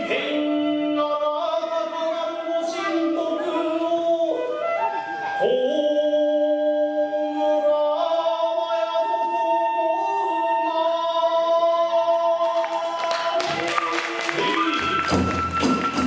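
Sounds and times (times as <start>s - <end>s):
percussion clashes and strikes: 13.4s - 16.0s.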